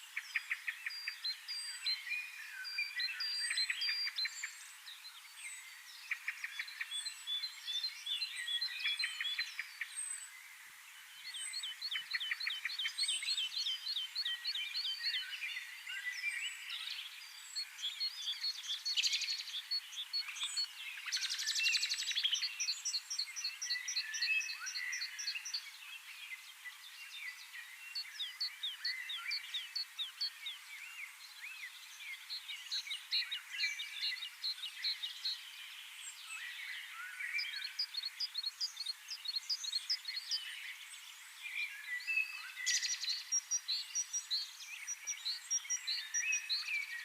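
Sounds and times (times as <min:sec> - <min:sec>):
small birds chirping and trilling: 0:00.0 - 0:47.0.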